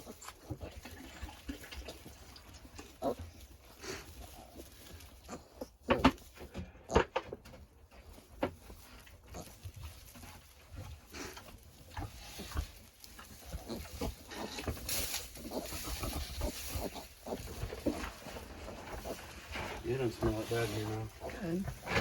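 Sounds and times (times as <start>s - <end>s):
pigs grunting: 0.0s - 5.8s, 11.1s - 22.0s
rustling: 0.0s - 22.0s.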